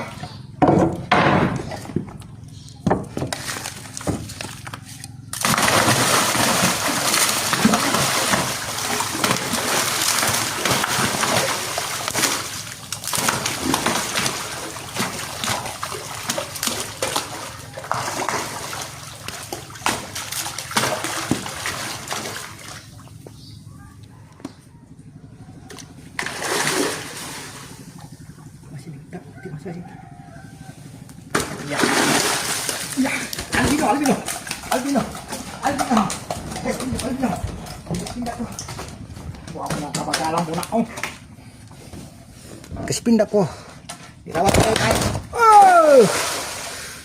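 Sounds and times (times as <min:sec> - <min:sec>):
fish splashing at water surface: 0:03.2 - 0:23.2, 0:26.2 - 0:28.2, 0:31.4 - 0:39.0, 0:44.4 - 0:47.0.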